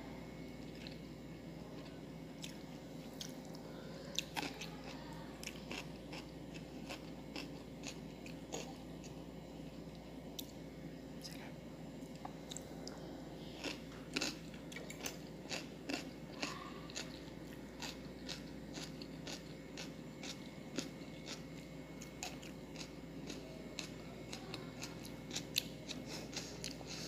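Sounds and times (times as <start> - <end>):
chewing and biting food: 13.6 - 27.0.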